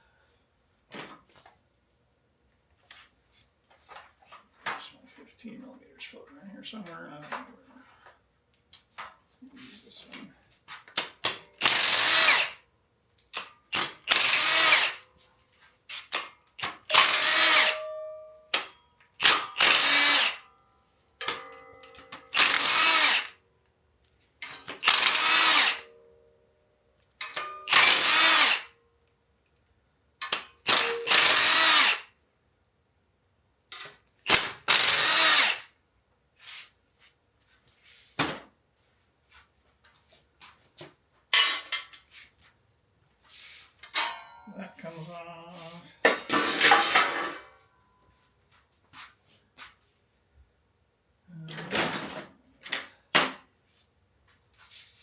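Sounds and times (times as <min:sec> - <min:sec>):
cordless power wrench running: 0:11.6 - 0:12.6, 0:13.8 - 0:15.0, 0:16.6 - 0:17.8, 0:19.2 - 0:20.4, 0:22.3 - 0:23.4, 0:24.7 - 0:25.9, 0:27.4 - 0:28.7, 0:30.7 - 0:32.1, 0:34.3 - 0:35.7.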